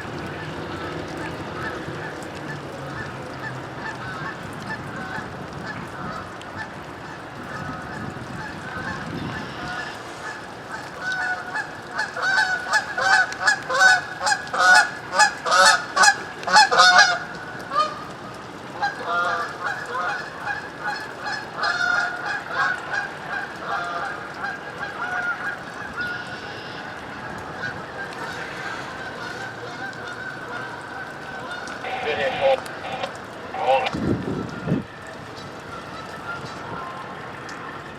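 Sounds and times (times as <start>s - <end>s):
geese honking: 23.3s - 33.9s.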